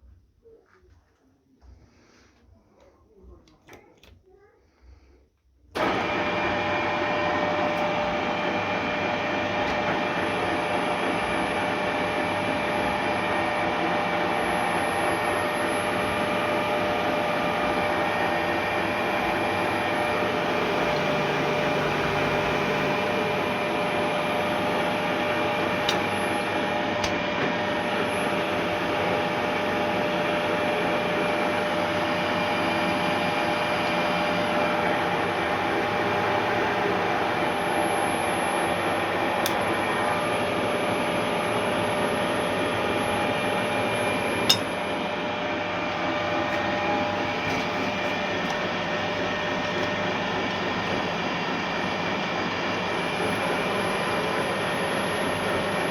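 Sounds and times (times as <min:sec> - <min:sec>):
milling machine humming and whining: 0:05.8 - 0:55.9.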